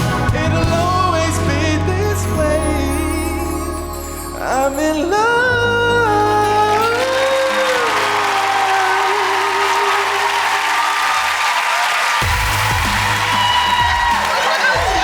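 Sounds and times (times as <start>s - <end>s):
backing band playing: 0.0s - 8.5s, 12.2s - 15.0s
man singing a long note: 0.2s - 10.3s
audience applause and cheering: 6.0s - 15.0s.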